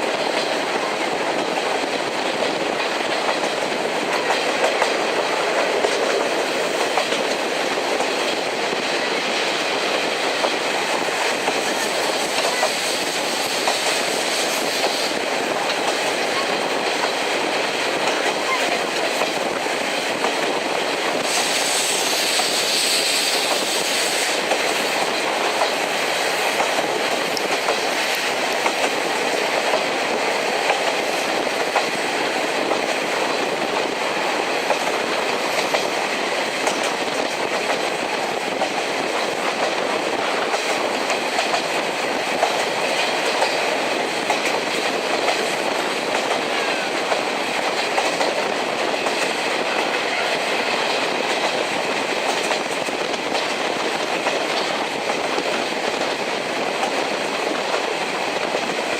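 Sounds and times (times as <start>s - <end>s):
clickety-clack over rail joints: 0.0s - 58.9s
train wheels rumbling on rails: 0.0s - 58.9s
high hiss: 19.6s - 29.4s.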